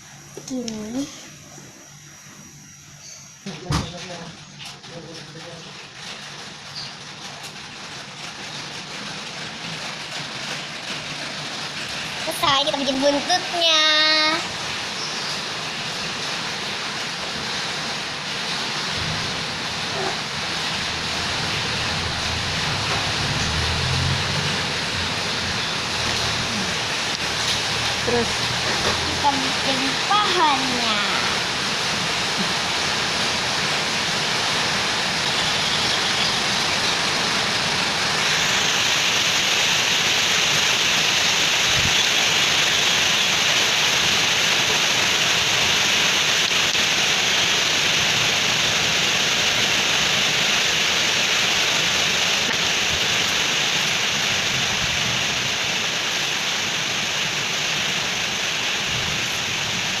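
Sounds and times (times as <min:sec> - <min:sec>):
steady rushing hiss: 0:04.1 - 1:00.0.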